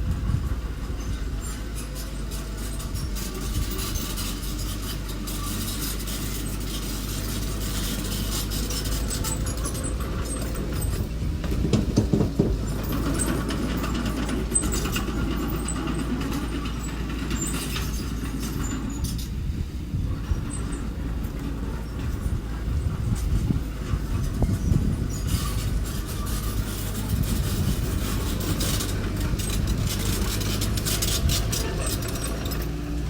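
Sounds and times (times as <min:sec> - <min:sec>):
construction machine engine running: 0:00.0 - 0:33.0
knocks and clatter: 0:05.3 - 0:19.4, 0:23.0 - 0:33.0.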